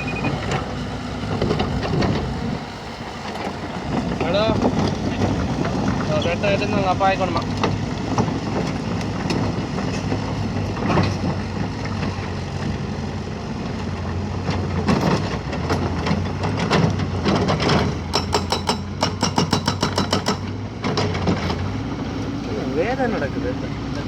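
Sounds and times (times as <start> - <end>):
excavator diesel engine running: 0.0 - 24.0
sharp metallic knocks: 17.6 - 21.4.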